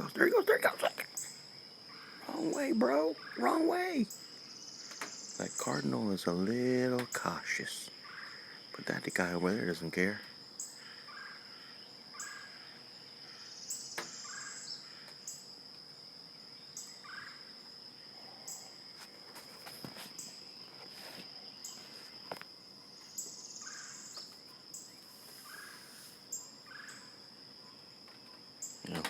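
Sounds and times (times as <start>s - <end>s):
insects droning: 0.0s - 29.0s
short bird calls: 10.6s - 15.5s, 23.1s - 27.2s.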